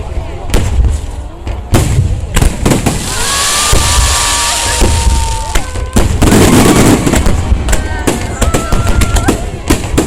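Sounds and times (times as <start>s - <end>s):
firework crackle: 0.5s - 10.0s
firework shells booming: 1.7s - 10.0s
firework whistling: 2.8s - 9.5s.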